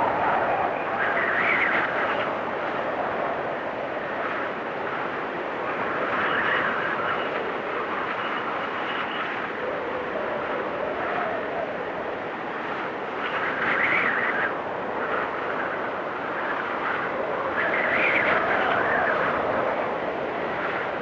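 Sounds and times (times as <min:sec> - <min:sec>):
blizzard wind whistling: 0:00.0 - 0:21.0.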